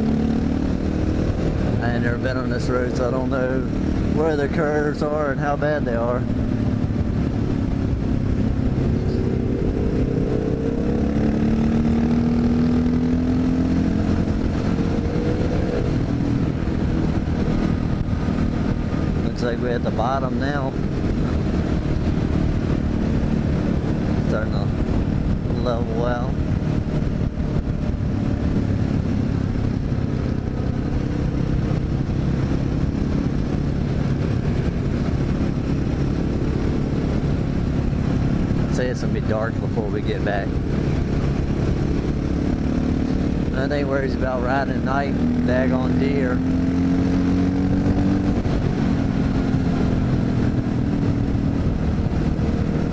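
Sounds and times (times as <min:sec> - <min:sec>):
motorcycle engine running: 0:00.0 - 0:52.9
wind rumble on microphone: 0:00.0 - 0:52.9.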